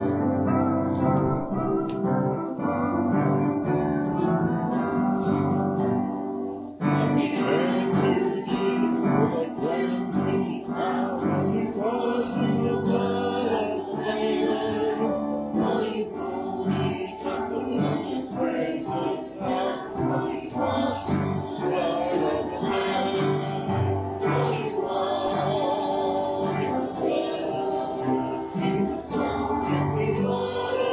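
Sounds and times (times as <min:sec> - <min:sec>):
worship band music: 0:00.0 - 0:30.9
person singing: 0:07.1 - 0:30.9.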